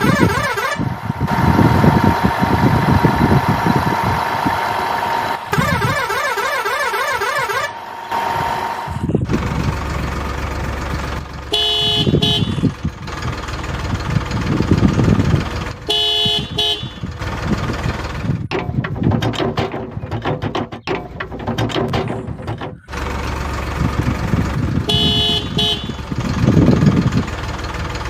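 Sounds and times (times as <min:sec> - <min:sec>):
vehicle horn tooting: 0:00.0 - 0:00.9, 0:05.5 - 0:07.8, 0:11.5 - 0:12.7, 0:15.8 - 0:17.1, 0:24.8 - 0:26.2
engine-like rumble: 0:00.0 - 0:28.0.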